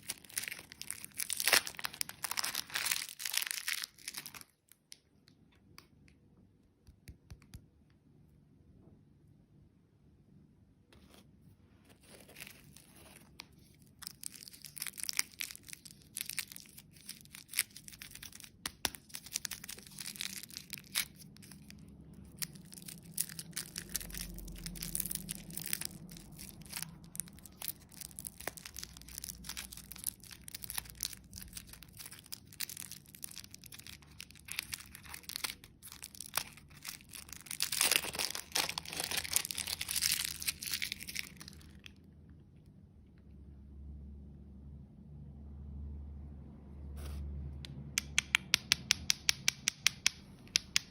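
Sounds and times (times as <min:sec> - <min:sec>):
plastic wrapping crinkling: 0:00.0 - 0:05.1, 0:11.9 - 0:42.0.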